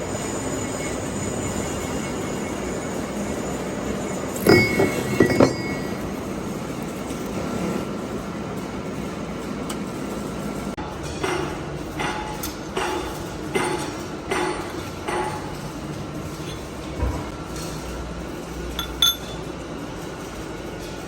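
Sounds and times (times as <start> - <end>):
workshop machinery rumbling: 0.0 - 21.0
metal clinking and ringing: 4.0 - 6.4, 12.2 - 16.9, 18.7 - 19.6.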